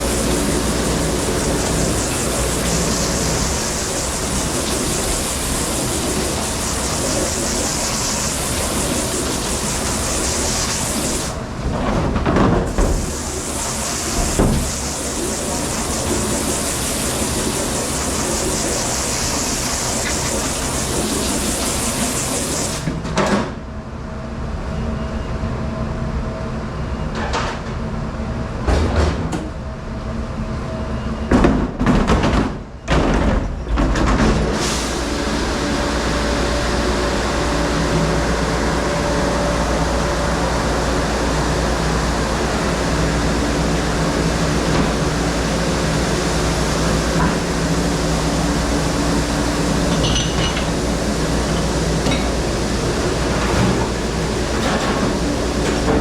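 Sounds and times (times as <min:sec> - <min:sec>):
machine humming: 0:00.0 - 0:11.8, 0:34.6 - 0:56.0.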